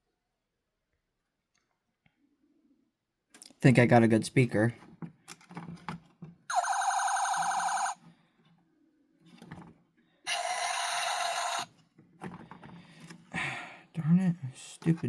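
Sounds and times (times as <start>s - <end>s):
toy fire truck electronic alarm: 6.5s - 8.0s, 10.3s - 11.7s.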